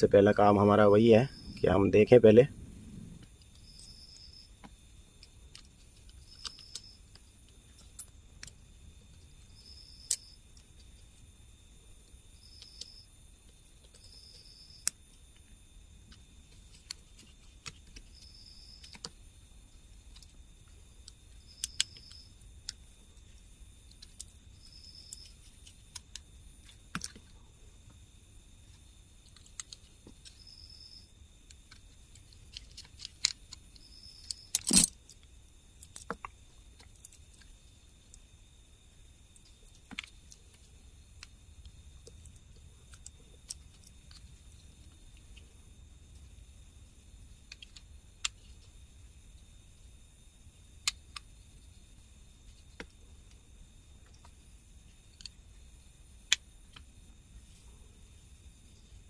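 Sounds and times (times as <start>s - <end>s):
cricket chirping: 0.0s - 59.0s
plastic parts clicking and tapping: 25.9s - 27.3s, 29.2s - 30.4s, 31.6s - 35.0s, 39.7s - 40.4s.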